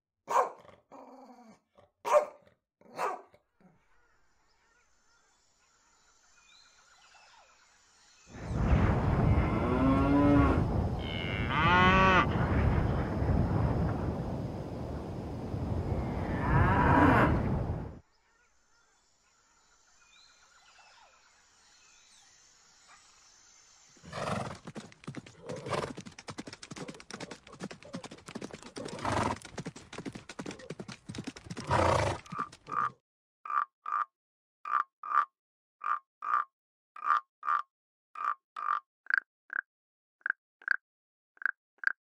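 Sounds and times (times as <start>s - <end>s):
steady outdoor noise: 4.4s - 32.9s
horses neighing: 24.1s - 32.9s
tree frog croaking: 32.3s - 34.1s, 34.7s - 40.8s.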